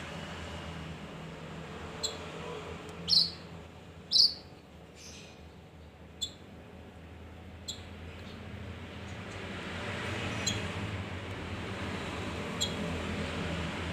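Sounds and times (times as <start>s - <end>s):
bird chirping: 2.0s - 2.2s, 3.0s - 3.5s, 4.1s - 5.4s, 6.2s - 6.4s, 7.6s - 7.9s.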